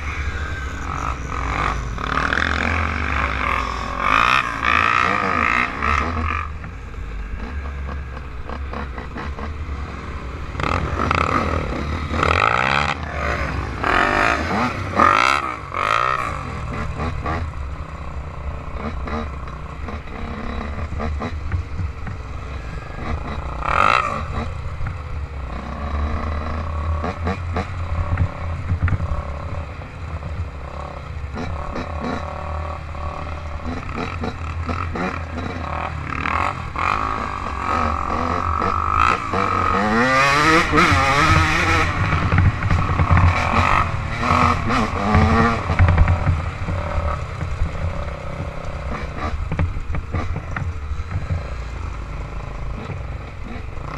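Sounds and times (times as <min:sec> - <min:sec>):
small engine revving: 0:30.6 - 0:50.5.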